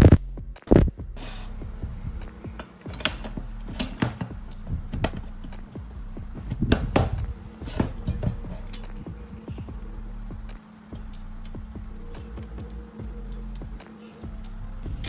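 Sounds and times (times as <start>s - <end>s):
low hum: 0.0s - 15.0s
metal tools clinking on workbench: 6.7s - 9.1s.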